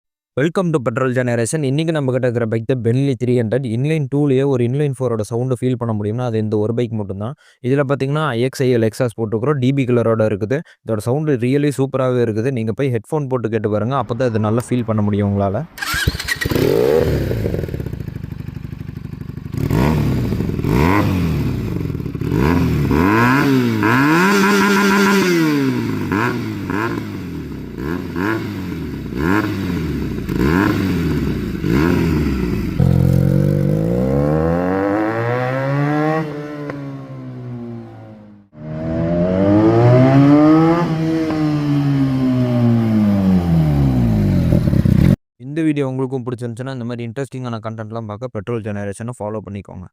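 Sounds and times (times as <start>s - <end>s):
motorcycle engine revving: 15.8s - 45.2s.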